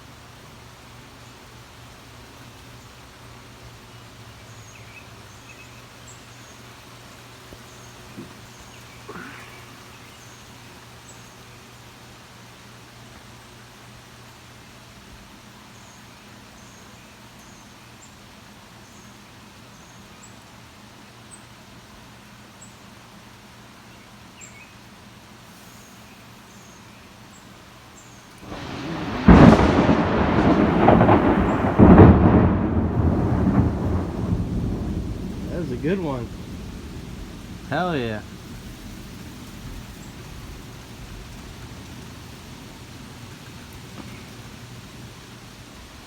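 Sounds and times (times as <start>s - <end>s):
thunder crack and rumble: 28.4s - 44.5s.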